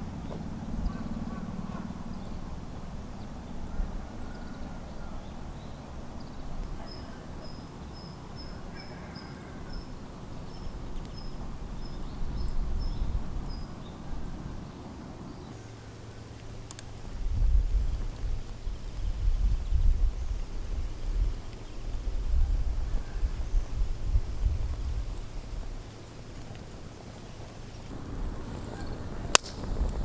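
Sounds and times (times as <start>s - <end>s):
faint bird chirps: 3.3s - 14.0s.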